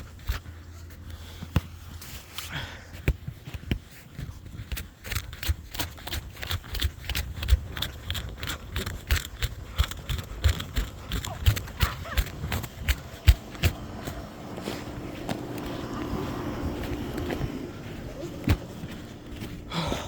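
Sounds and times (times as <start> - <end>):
footsteps crunching through snow: 8.6 - 20.0.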